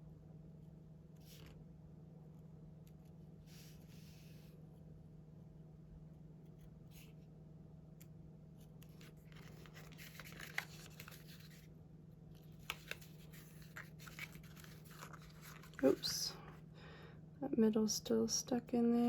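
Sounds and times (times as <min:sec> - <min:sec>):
craft knife scraping paper: 0:12.6 - 0:16.0.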